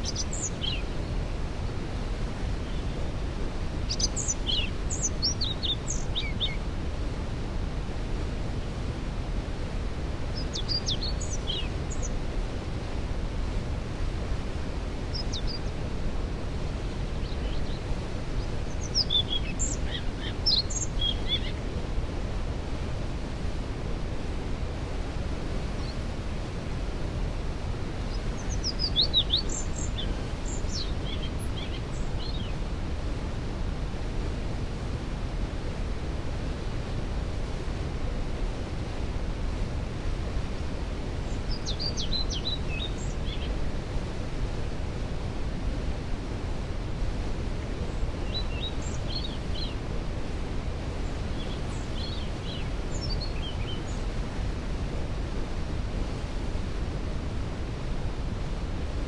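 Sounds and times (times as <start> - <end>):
songbirds singing: 0.0 - 6.7, 10.2 - 12.7, 13.6 - 21.9, 25.6 - 26.0, 27.1 - 32.8, 41.2 - 44.8, 47.6 - 54.8.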